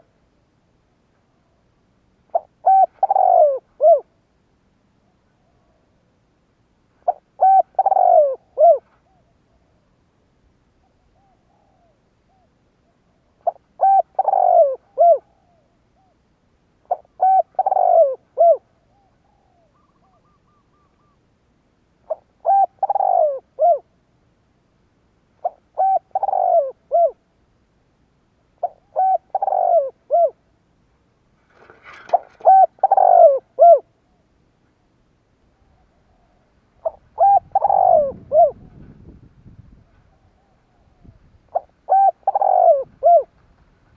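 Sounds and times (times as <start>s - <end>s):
dove cooing: 2.3s - 4.2s, 7.0s - 9.9s, 10.8s - 16.2s, 16.8s - 21.2s, 22.0s - 23.9s, 25.4s - 27.3s, 28.6s - 30.5s, 31.5s - 34.2s, 35.6s - 39.2s, 39.8s - 43.4s.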